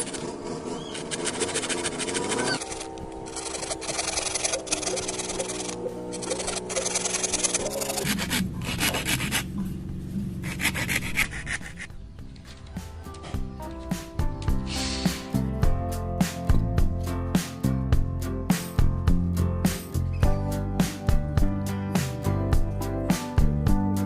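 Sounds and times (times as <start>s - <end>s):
hand tool rasping bamboo: 0.0s - 9.7s, 10.3s - 12.0s
background music with held notes: 2.6s - 4.5s, 11.9s - 24.0s.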